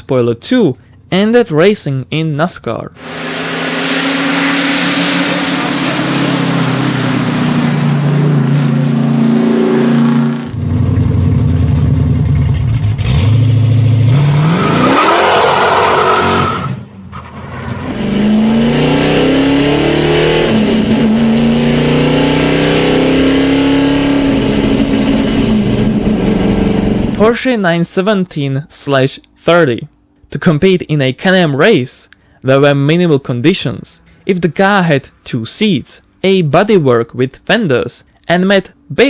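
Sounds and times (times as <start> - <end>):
race car engines at full throttle: 3.0 - 27.3.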